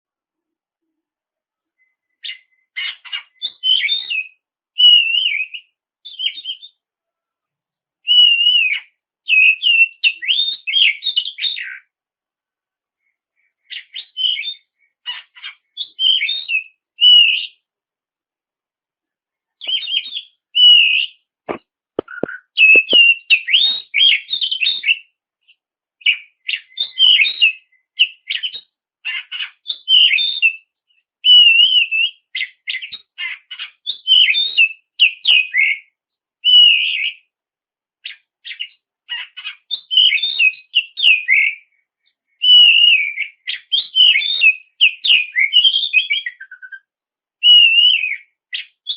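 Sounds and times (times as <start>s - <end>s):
bird singing whistles and trills: 1.7s - 6.9s, 8.0s - 11.9s, 13.6s - 17.7s, 19.6s - 21.3s, 22.0s - 37.3s, 38.0s - 41.8s, 42.4s - 48.9s
sharp clicks: 21.5s - 23.1s.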